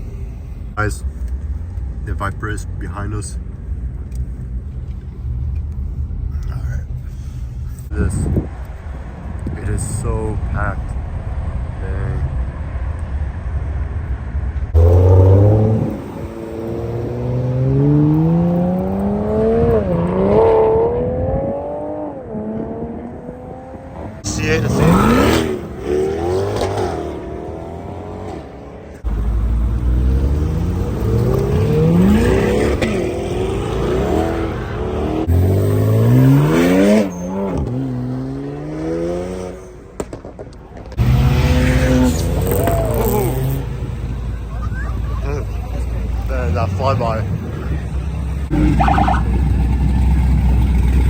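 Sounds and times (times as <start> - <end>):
car engine accelerating hard: 14.7 - 40.1, 40.8 - 51.0.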